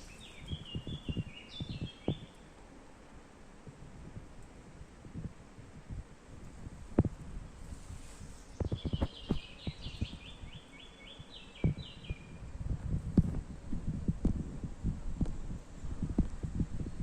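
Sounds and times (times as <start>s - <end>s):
songbird singing: 0.0s - 2.5s, 8.4s - 12.5s.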